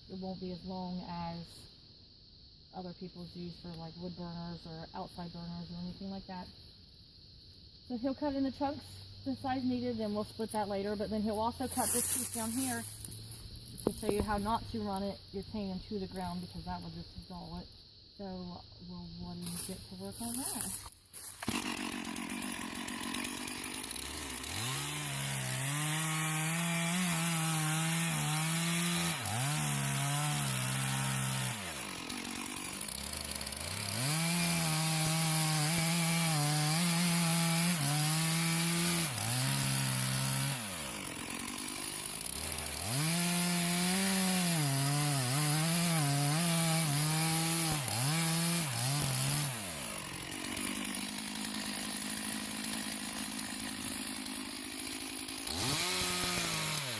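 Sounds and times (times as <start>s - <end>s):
chainsaw cutting wood: 9.4s - 15.1s, 19.4s - 56.9s.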